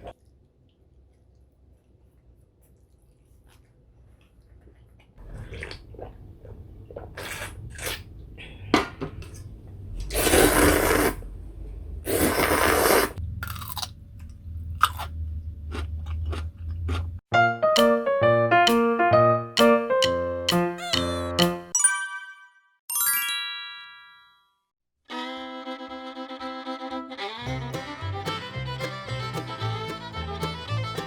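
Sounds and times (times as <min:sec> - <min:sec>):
person chewing and crunching food: 0:00.1 - 0:08.4, 0:12.1 - 0:17.2.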